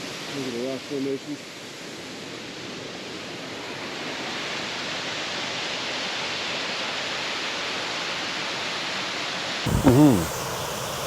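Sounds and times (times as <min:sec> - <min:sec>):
waterfall rushing: 0:09.7 - 0:11.0.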